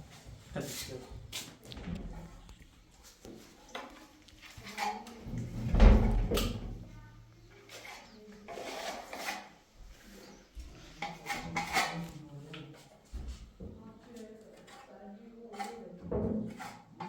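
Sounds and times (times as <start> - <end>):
scraping and rubbing: 3.7 - 6.1, 7.6 - 13.0, 14.4 - 17.0.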